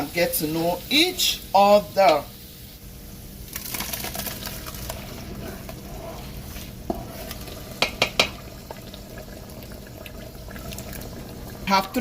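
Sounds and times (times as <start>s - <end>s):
spoon stirring in a pot: 3.5s - 11.9s
spoon knocking against pot: 7.8s - 8.4s.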